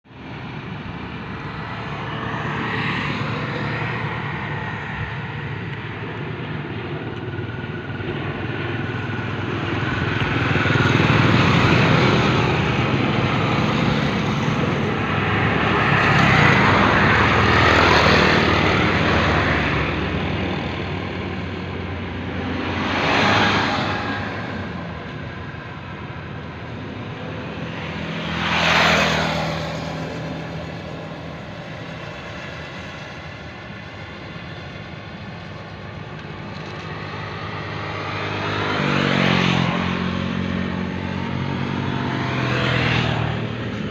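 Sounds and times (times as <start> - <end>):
propeller aircraft engine droning: 0.0 - 43.9.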